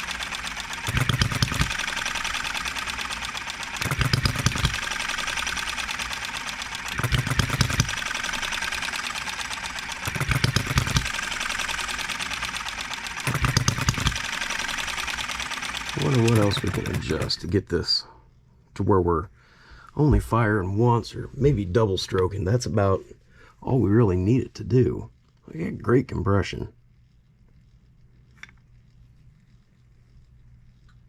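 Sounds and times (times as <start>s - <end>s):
small engine firing strokes: 0.0s - 17.6s
engine ticking while coasting: 0.0s - 17.7s.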